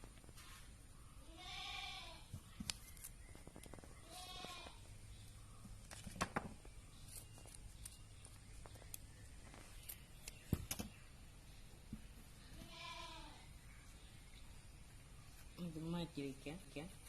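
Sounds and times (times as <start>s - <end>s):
animal bleating: 0.4s - 2.3s, 4.0s - 4.8s, 12.6s - 13.4s.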